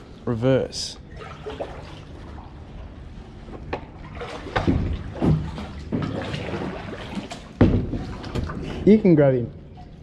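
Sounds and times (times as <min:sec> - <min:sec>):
water sloshing: 0:00.9 - 0:10.0.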